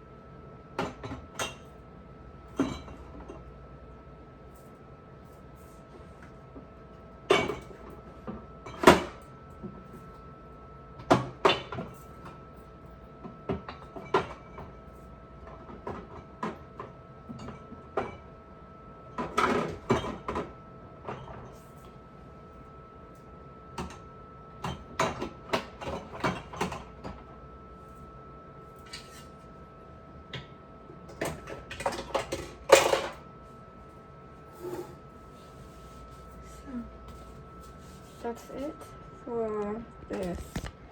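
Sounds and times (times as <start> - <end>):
faint steady hum: 26.2 - 40.9.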